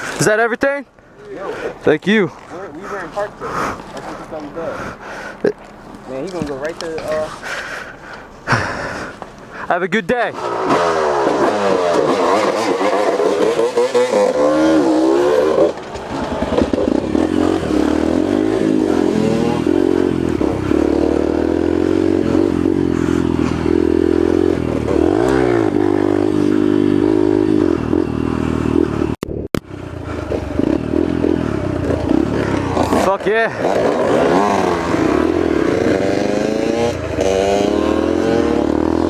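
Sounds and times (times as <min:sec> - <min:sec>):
dirt bike engine revving: 0:10.2 - 0:39.0.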